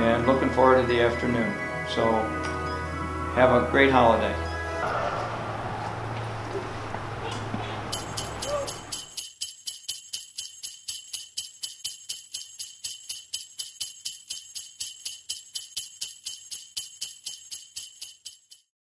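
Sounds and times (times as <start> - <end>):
jingle bells shaken: 7.9 - 18.7.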